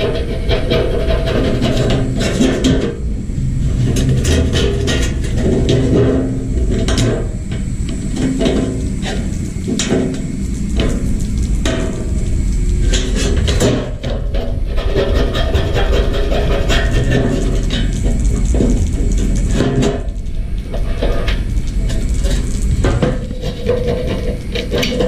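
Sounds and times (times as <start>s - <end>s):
knocks taps and scraping: 0.0s - 3.0s, 12.9s - 25.0s
steady low rumble: 0.0s - 25.0s.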